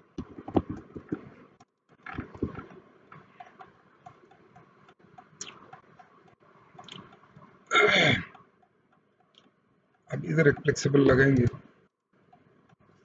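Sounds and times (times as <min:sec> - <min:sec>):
mouse scroll wheel ticking: 0:00.2 - 0:01.4, 0:02.1 - 0:07.3, 0:08.3 - 0:11.6.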